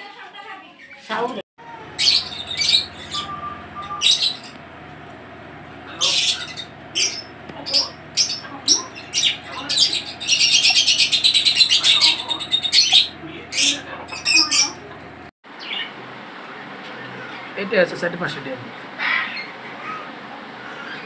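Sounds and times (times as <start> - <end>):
pet birds squawking and chattering: 1.6 - 15.9.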